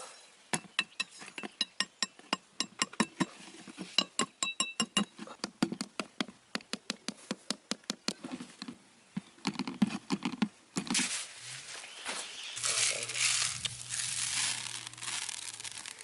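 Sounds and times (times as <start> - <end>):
rustle: 8.2 - 16.0.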